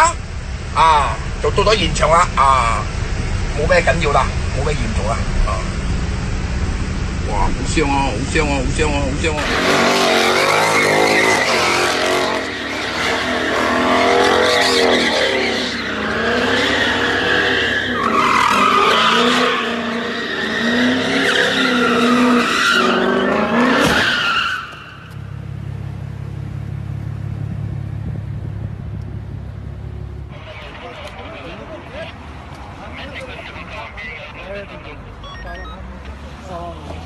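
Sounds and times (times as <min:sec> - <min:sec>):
car engines revving: 0:00.0 - 0:37.0
tyres squealing and skidding: 0:09.2 - 0:25.3
low rumble: 0:25.2 - 0:30.8.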